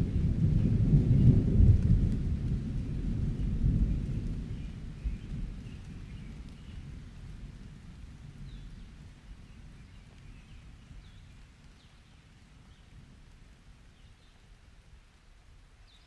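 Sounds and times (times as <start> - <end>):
distant thunder rolling: 0.0 - 7.8
light rain: 0.0 - 16.0.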